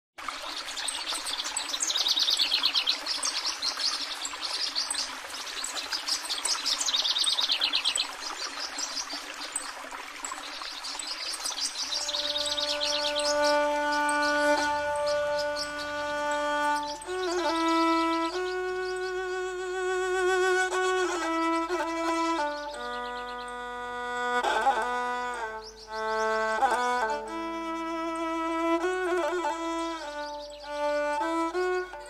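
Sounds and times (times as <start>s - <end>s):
outdoor background hiss: 0.2s - 32.0s
birds trilling: 11.4s - 32.0s.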